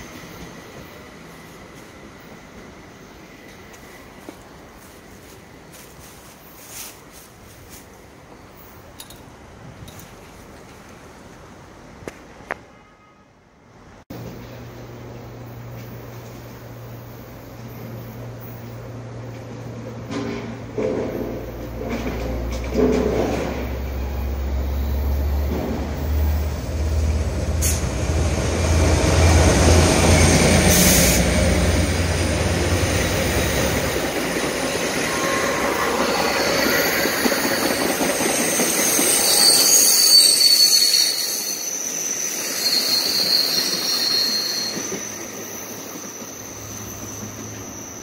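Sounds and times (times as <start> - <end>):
diesel locomotive engine rumbling: 13.8 - 48.0
train wheels squealing: 20.8 - 48.0.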